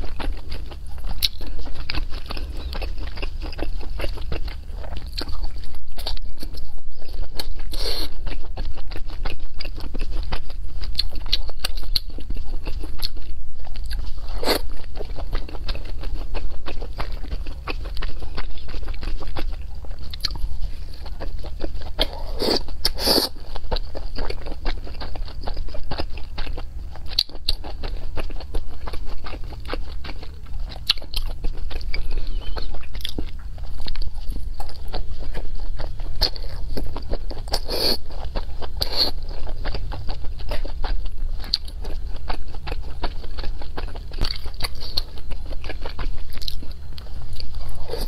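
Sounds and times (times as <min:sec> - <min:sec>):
chewing dumplings: 0:00.0 - 0:48.0.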